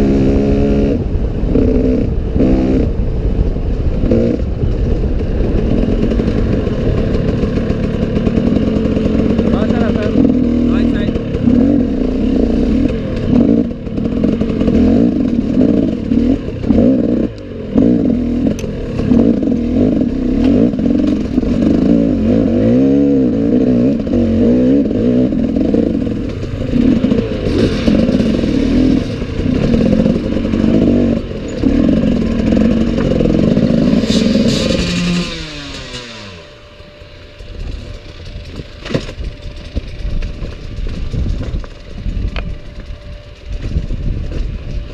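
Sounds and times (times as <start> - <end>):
motorcycle engine revving: 0.0 - 44.9
clatter and scraping: 3.7 - 44.9.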